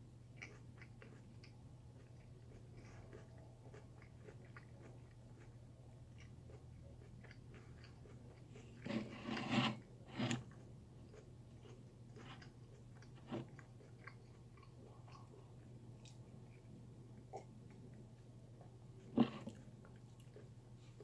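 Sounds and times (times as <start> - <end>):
chewing crunchy raw vegetable: 0.2 - 18.2.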